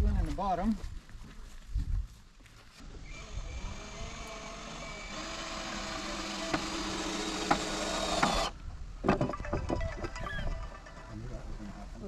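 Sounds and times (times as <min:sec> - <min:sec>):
power drill driving a screw: 0:03.0 - 0:08.6
drill clicks: 0:03.1 - 0:08.6.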